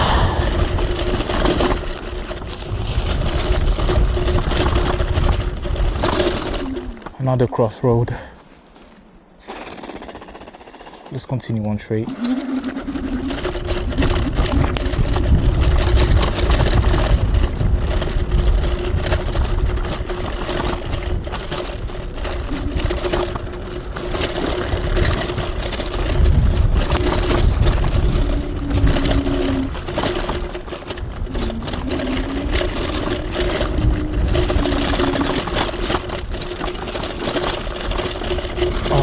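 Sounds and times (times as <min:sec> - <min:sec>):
wind rumble on microphone: 0:00.0 - 0:07.6, 0:12.2 - 0:39.0
knocks and rattles from bumps: 0:00.0 - 0:08.9, 0:10.0 - 0:39.0
electric motor whining: 0:26.1 - 0:36.3.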